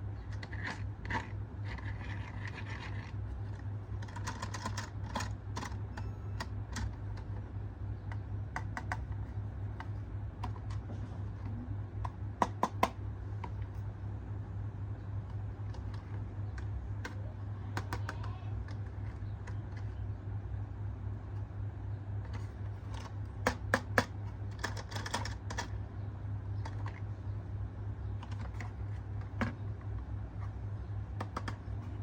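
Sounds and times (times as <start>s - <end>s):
low hum: 0.0s - 32.0s
plastic toy parts clicking: 3.9s - 7.4s, 22.3s - 25.8s.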